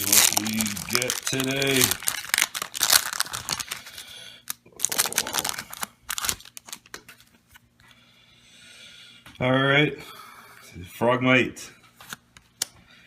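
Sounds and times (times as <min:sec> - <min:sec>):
wrapper tearing and crinkling: 0:00.0 - 0:07.0.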